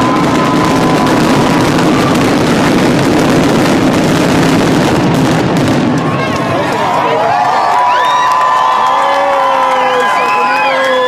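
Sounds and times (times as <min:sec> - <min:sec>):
fireworks bursting: 0:00.0 - 0:08.8.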